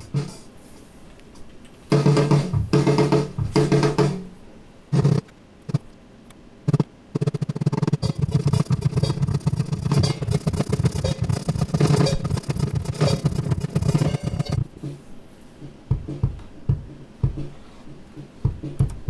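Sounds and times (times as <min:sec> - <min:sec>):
acoustic guitar strumming: 0:08.0 - 0:14.6.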